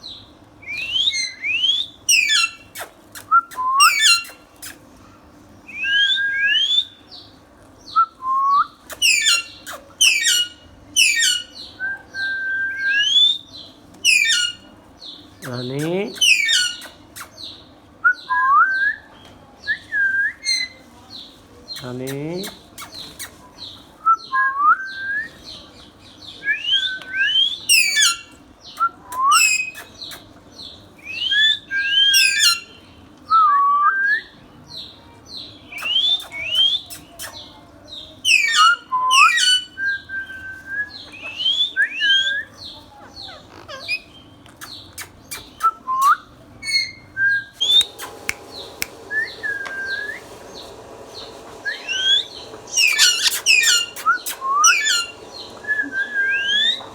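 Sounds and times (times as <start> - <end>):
parakeet whistling and chirping: 14.1 - 14.6, 47.6 - 50.6, 51.6 - 56.9.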